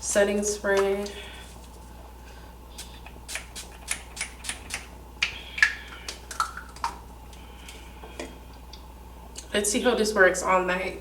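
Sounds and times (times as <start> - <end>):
spray bottle spritzing: 2.8 - 4.9.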